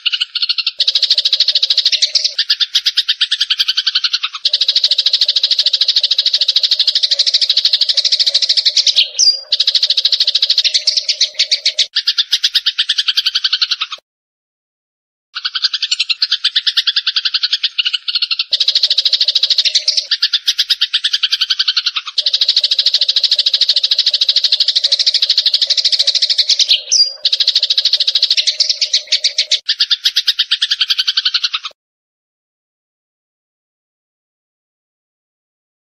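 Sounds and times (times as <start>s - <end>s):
sparrows chirping: 0.0s - 14.0s, 15.4s - 31.8s
high bird whistle: 4.6s - 12.0s, 22.2s - 30.3s.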